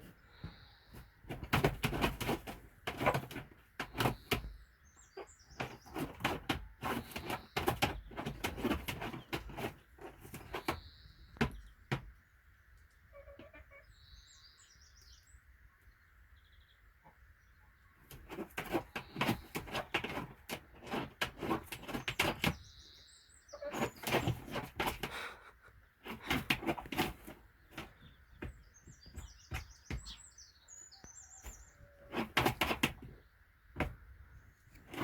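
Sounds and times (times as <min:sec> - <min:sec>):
small birds chirping: 0:00.0 - 0:35.0
objects knocking and scraping: 0:00.4 - 0:04.5, 0:05.5 - 0:12.1, 0:18.0 - 0:22.6, 0:23.6 - 0:25.3, 0:26.0 - 0:30.3, 0:31.4 - 0:33.2, 0:34.7 - 0:35.0.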